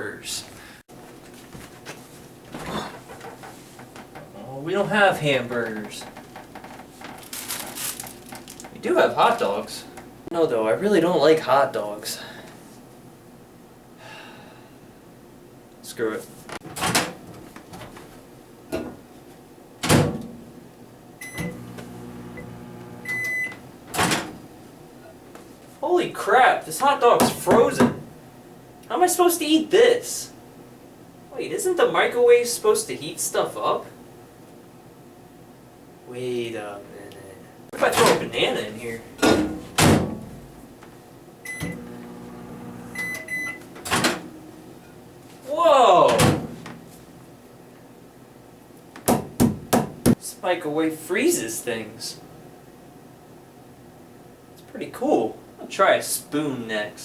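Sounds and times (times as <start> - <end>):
microwave keypad beep: 21.2 - 21.6, 22.4 - 23.6, 43.0 - 43.6
microwave finish beep: 21.2 - 23.6, 41.5 - 43.7
microwave humming: 21.2 - 24.4, 41.5 - 45.2
microwave door thump: 39.2 - 40.3.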